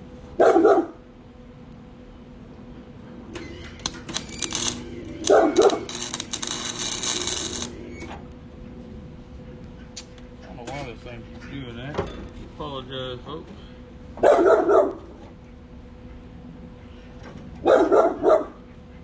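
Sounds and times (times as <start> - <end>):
dog barking: 0.4 - 1.0, 5.3 - 5.9, 14.2 - 15.0, 17.6 - 18.6
arc welder crackling: 3.3 - 8.4.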